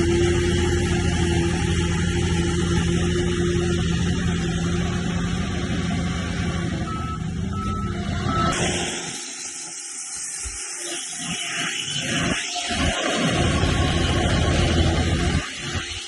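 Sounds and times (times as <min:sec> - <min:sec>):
bulldozer diesel engine running: 0:00.0 - 0:09.3, 0:12.7 - 0:16.0
short high beeps: 0:06.9 - 0:08.6.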